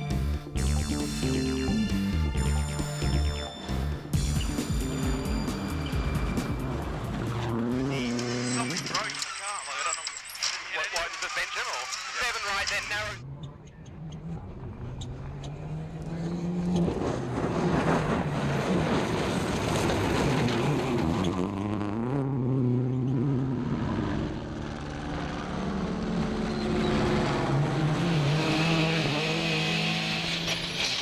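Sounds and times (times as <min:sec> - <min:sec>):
car engine revving hard: 0:15.6 - 0:31.0.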